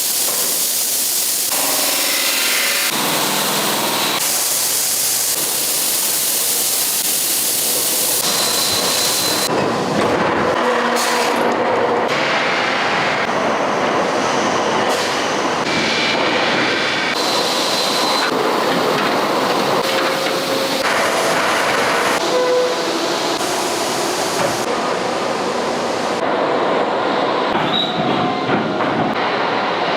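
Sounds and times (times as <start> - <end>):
heavy industrial machinery noise: 0.0 - 29.9
metal squeals: 22.2 - 23.3.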